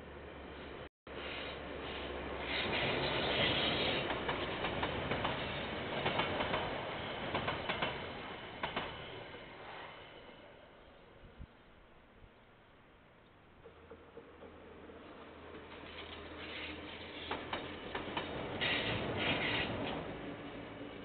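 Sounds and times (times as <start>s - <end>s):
train wagons rumbling past: 0.0s - 11.2s, 13.5s - 21.0s
wheels clicking over rail joints: 2.4s - 9.1s, 13.5s - 20.4s.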